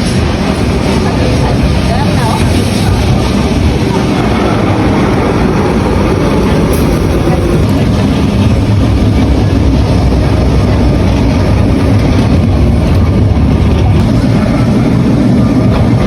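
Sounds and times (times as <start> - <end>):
tram rumbling along street: 0.0 - 16.0.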